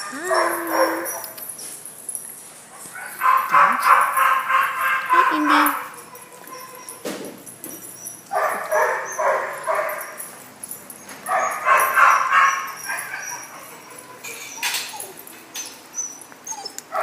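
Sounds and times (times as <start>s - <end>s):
small dogs barking: 0.0s - 1.5s, 2.8s - 7.0s, 8.1s - 10.4s, 11.1s - 15.3s, 16.0s - 17.0s.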